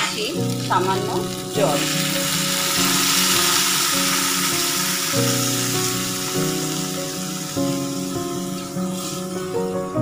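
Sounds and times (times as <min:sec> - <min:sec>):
background music: 0:00.0 - 0:10.0
water sizzling in hot wok: 0:00.0 - 0:10.0.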